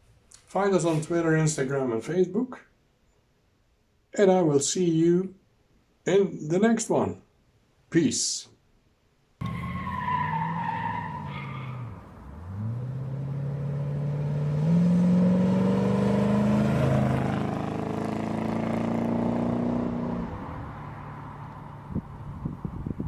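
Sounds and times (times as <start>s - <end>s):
car engine accelerating: 9.4s - 22.4s.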